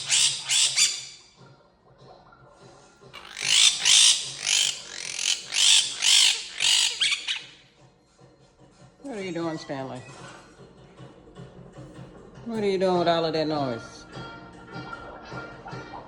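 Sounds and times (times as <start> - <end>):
parrot squawking harshly: 0.0 - 1.2, 3.2 - 7.6.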